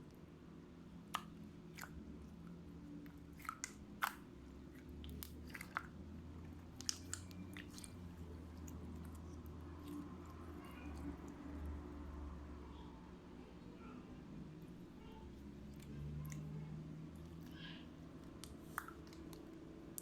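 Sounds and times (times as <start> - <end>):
slime popping and clicking: 6.8 - 7.9.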